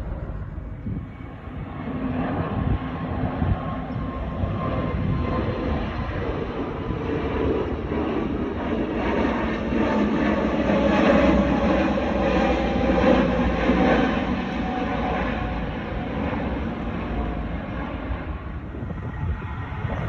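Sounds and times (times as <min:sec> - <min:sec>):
jet engines at takeoff: 0:00.0 - 0:20.0.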